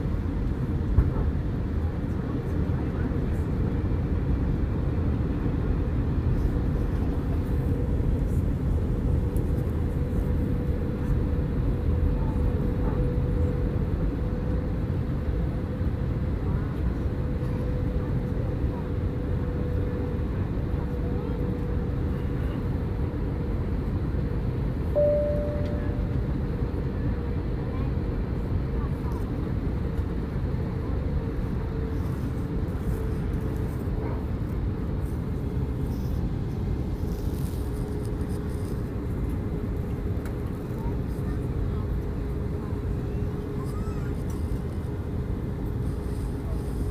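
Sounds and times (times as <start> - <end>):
constant hum: 0.0 - 46.9
deep rumble of engines and airflow: 0.0 - 46.9
faint steady hum: 24.8 - 26.6.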